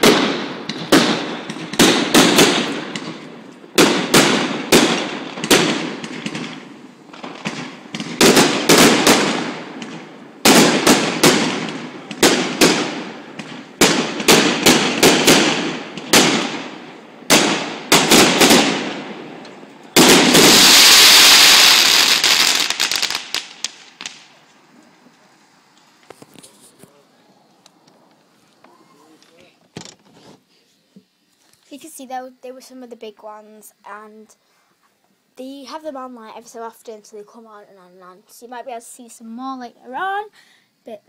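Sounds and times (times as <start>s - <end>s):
fireworks banging: 0.0s - 27.1s
fireworks crackling: 0.0s - 30.5s.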